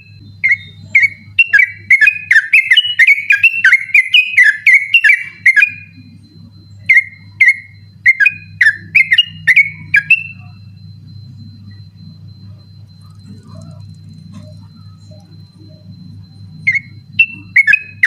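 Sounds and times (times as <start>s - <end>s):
bird singing whistled notes: 0.0s - 6.0s, 13.2s - 18.0s
low steady hum: 0.0s - 18.0s.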